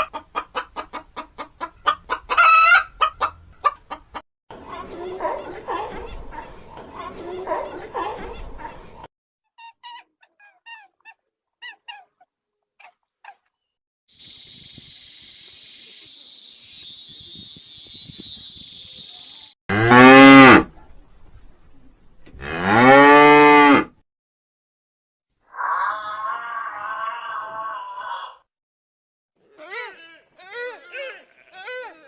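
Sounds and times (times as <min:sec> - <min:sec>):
steady high hiss: 0:14.2 - 0:19.5
cow mooing: 0:19.7 - 0:20.7, 0:22.4 - 0:23.9.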